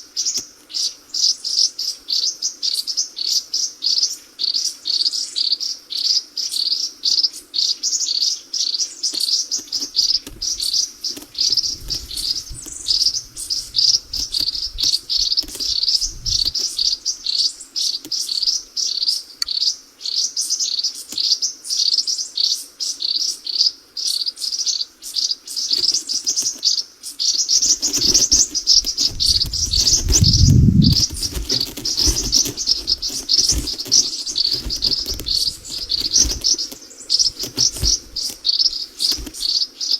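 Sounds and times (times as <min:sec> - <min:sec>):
small birds chirping: 0:00.0 - 0:39.9
low rumbles: 0:28.8 - 0:33.0.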